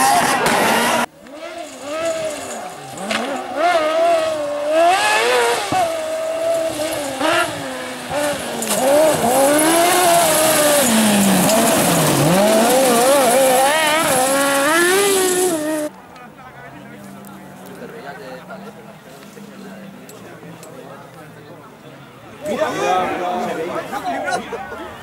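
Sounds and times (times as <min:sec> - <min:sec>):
rally car engine revving: 0:00.0 - 0:15.9.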